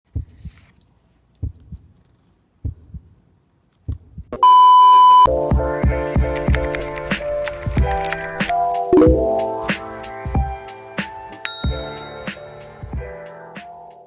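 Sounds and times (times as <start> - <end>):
heartbeat thumps: 0.1 - 0.6, 1.4 - 2.0, 2.6 - 3.2, 3.8 - 4.4, 9.0 - 9.4
electronic beep: 4.4 - 5.3
electronic music with beat: 5.3 - 10.8.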